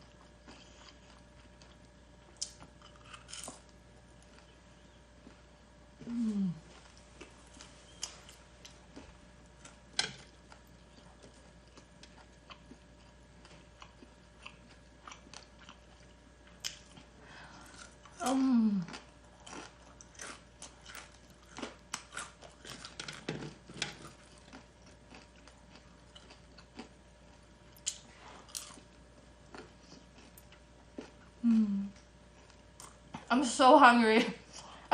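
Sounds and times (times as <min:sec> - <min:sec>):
crunchy chewing: 0:00.0 - 0:05.6, 0:06.7 - 0:31.4
person humming: 0:06.0 - 0:06.7, 0:18.2 - 0:18.9, 0:31.4 - 0:32.0.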